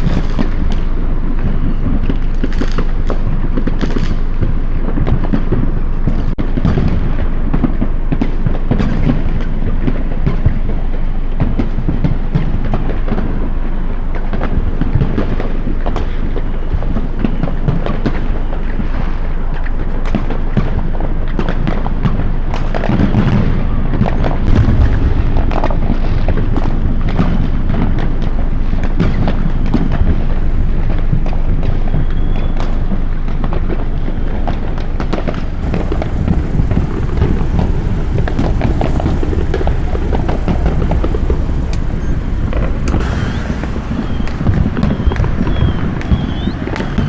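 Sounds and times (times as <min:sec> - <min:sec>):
fireworks booming and banging: 0:33.5 - 0:47.0.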